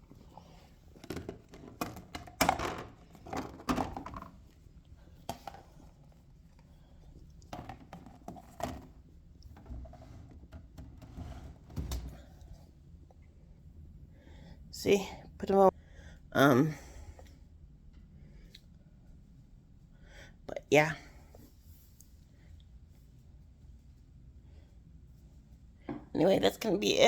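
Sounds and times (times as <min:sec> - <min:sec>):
household items knocking and clattering: 0:01.0 - 0:04.5, 0:07.5 - 0:12.2.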